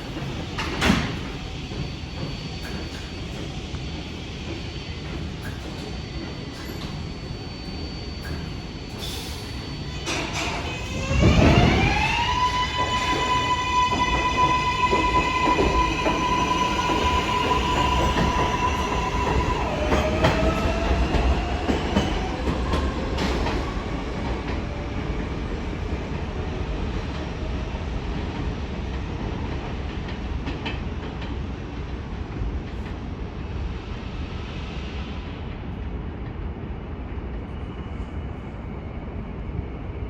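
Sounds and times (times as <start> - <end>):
electric train whine: 0.0 - 28.1.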